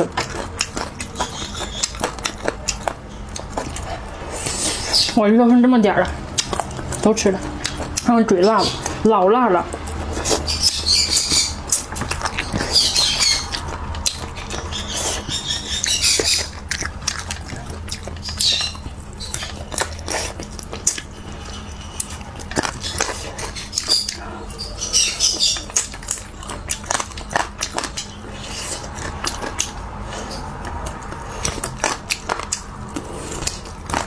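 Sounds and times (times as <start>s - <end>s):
chewing and smacking mouth sounds: 0.0s - 34.0s.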